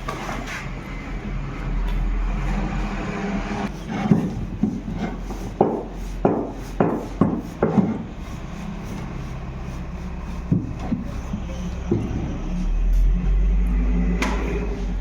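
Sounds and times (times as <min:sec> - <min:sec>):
tool knocking: 0:04.0 - 0:08.0, 0:10.5 - 0:11.2.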